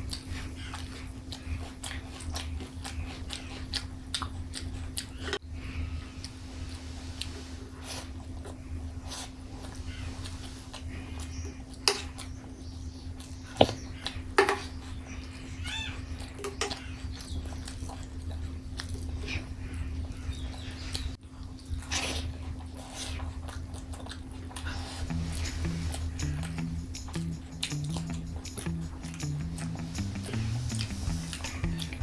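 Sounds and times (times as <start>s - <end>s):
chewing and wet mouth clicks: 0.0s - 5.4s, 9.6s - 12.4s, 16.2s - 19.4s, 20.1s - 32.0s
steady low hum: 0.0s - 32.0s.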